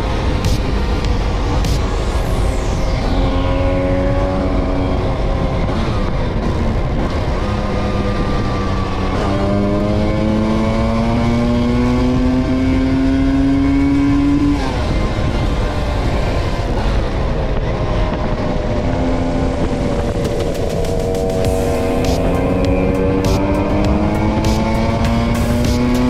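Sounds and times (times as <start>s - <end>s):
scooter two-stroke engine accelerating: 0.0s - 26.0s
riding noise rumble: 14.7s - 25.8s.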